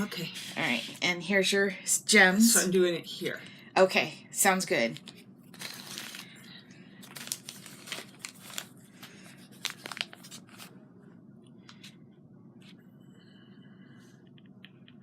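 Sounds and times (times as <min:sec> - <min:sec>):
craft materials crinkling and rustling: 0:05.0 - 0:10.8.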